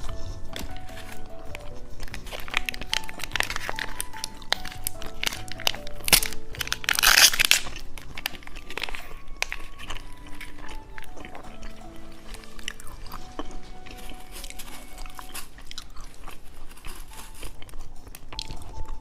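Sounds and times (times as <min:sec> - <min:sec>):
background music: 0:00.0 - 0:19.0
plastic wrapper crinkling: 0:00.0 - 0:19.0.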